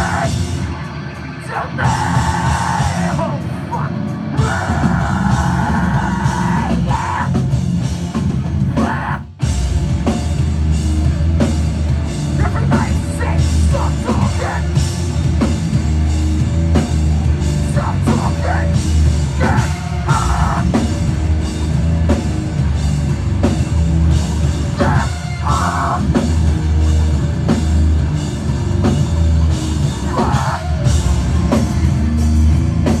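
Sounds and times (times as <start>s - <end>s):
shouted vocals: 0.0s - 0.4s, 1.4s - 7.4s, 12.4s - 14.8s, 17.6s - 20.9s, 24.7s - 26.2s, 30.0s - 31.2s
heavy metal band playing live: 0.0s - 33.0s.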